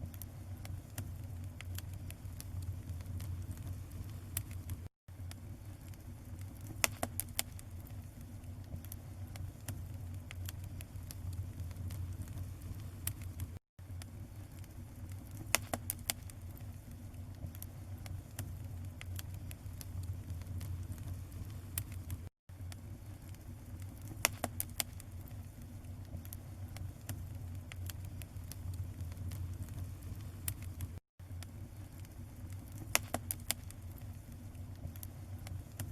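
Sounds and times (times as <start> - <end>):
bonfire crackling and popping: 0.0 - 35.9
low rumble: 0.4 - 4.9, 17.4 - 22.3, 26.1 - 31.0.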